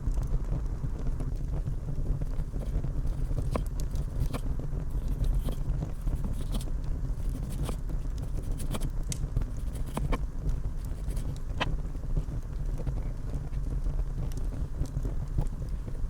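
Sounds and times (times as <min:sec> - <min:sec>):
wind rumble on microphone: 0:00.0 - 0:16.0
handling clicks and scrapes: 0:02.2 - 0:13.7.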